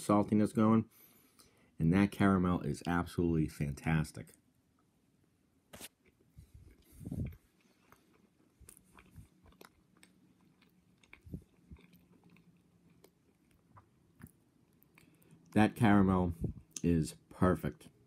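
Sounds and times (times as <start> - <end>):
faint chewing mouth clicks: 6.0 - 15.6.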